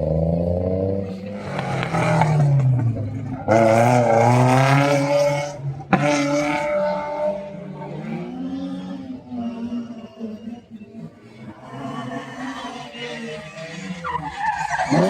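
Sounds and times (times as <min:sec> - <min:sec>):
race car engines accelerating: 0:00.0 - 0:15.0.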